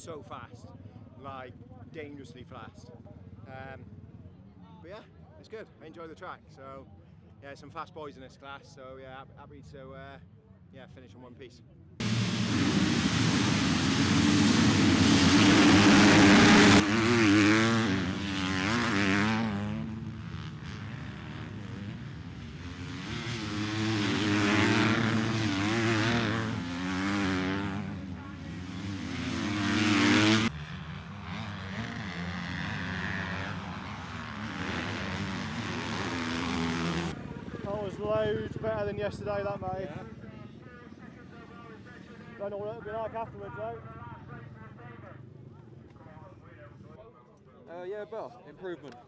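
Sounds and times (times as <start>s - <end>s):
motocross bike engines revving: 12.0s - 42.3s.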